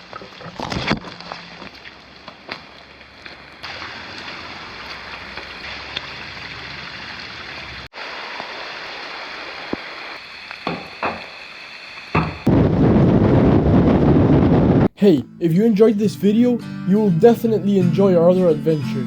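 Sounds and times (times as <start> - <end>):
heavy rain falling: 2.0 - 10.2.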